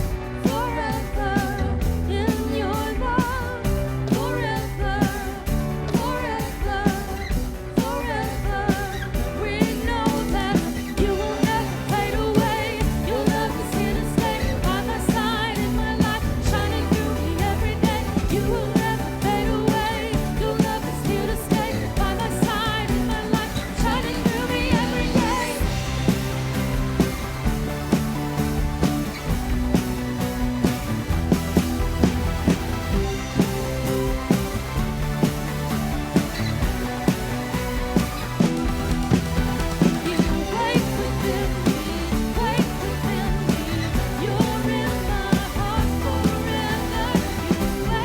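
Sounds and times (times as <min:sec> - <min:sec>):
bass: 0:00.0 - 0:48.0
drum beats: 0:00.0 - 0:48.0
person singing: 0:00.2 - 0:26.7, 0:39.7 - 0:48.0.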